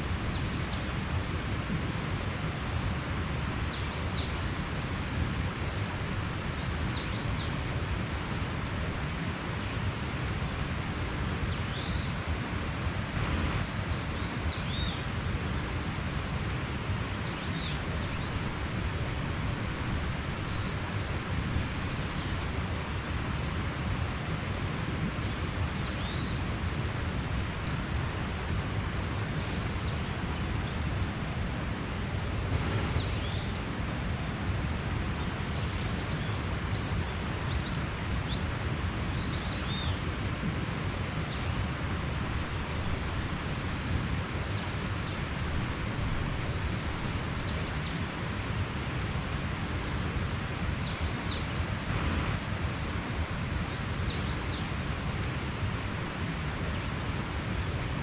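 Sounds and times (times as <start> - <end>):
mountain stream running: 0.0 - 58.0
songbird chirping: 32.0 - 33.8.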